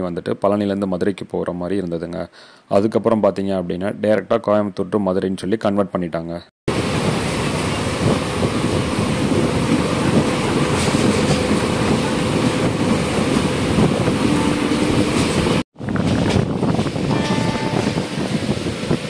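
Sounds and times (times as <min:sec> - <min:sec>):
train wheels rumbling and rattling: 0:06.7 - 0:19.0.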